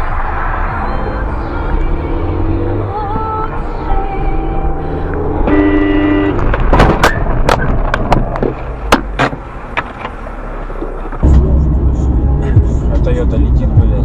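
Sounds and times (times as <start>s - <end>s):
road noise: 0.0s - 14.0s
car horn: 5.4s - 6.7s.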